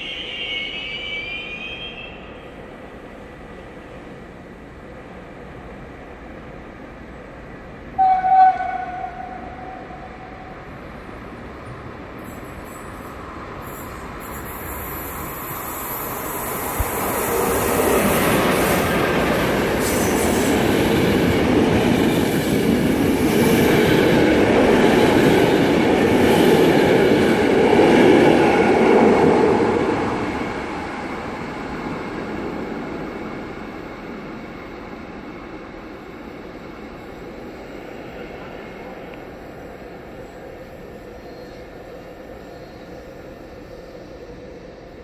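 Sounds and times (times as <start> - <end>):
train passing on tracks: 0.0 - 45.0.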